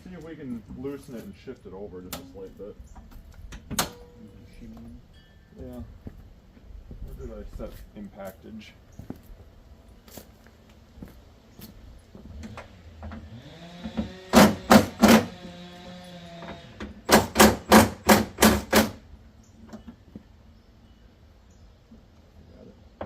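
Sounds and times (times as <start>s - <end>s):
impact wrench motor whine: 13.0s - 17.0s
impact wrench hammering: 13.9s - 15.4s, 17.0s - 19.0s.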